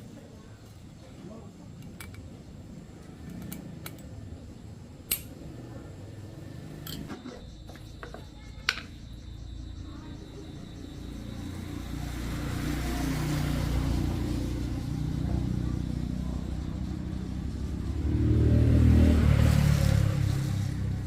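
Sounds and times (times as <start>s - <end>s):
small engine running: 10.2s - 21.0s.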